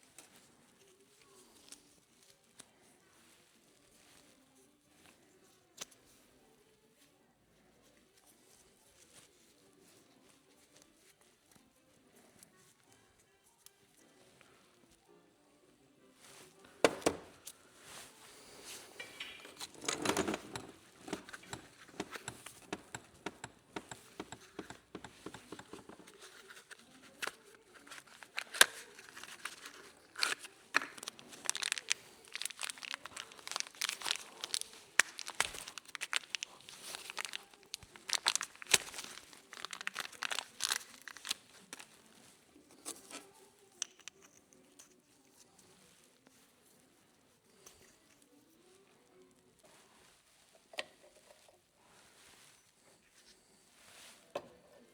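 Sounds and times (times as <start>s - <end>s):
sharp clicks and taps of parts: 16.8s - 17.4s, 19.0s - 27.4s
plastic packaging crinkling and tearing: 23.7s - 44.3s.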